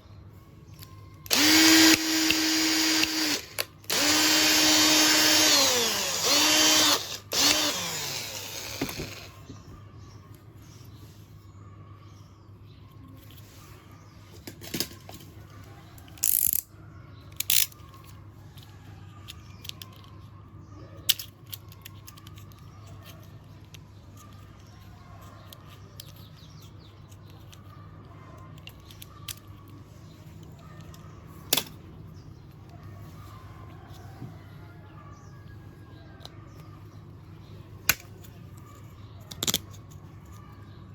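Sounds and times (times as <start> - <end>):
clicks of small hard objects: 37.8 - 40.7.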